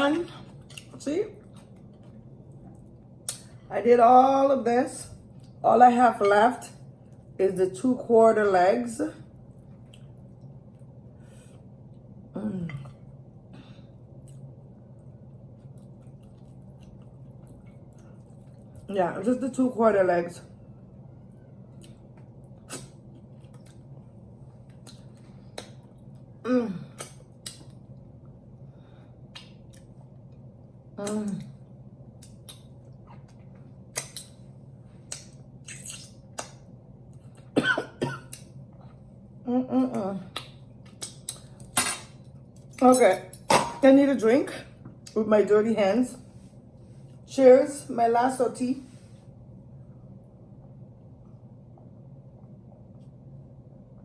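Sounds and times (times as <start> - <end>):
faint low hum: 0.0 - 54.0
wet eating smacks and clicks: 29.3 - 30.0, 32.2 - 34.4, 35.0 - 37.2, 40.3 - 41.6.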